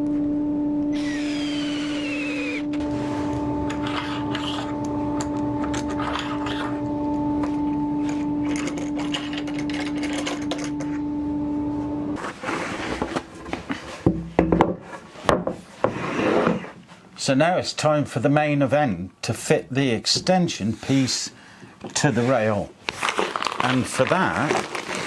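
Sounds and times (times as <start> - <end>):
small motor humming: 0.0 - 12.2.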